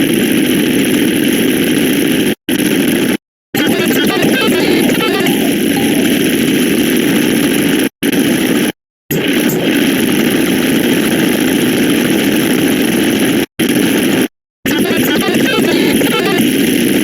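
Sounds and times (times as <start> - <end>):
dense digital sound effects: 3.6 - 6.5.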